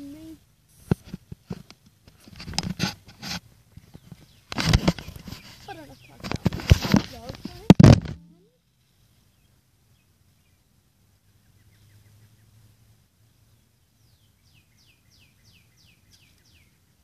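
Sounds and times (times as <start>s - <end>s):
faint birdsong chirps and whistles: 3.6s - 6.5s, 8.2s - 17.0s.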